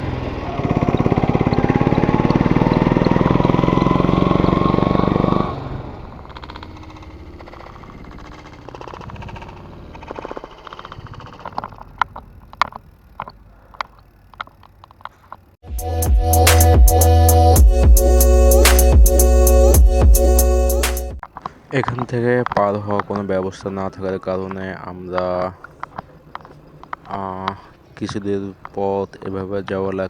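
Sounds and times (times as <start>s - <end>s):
motorcycle engine accelerating: 0.0s - 30.0s
quiet engine rumble: 0.0s - 30.0s
sharp clicks: 6.2s - 15.6s, 18.6s - 19.3s, 20.8s - 30.0s.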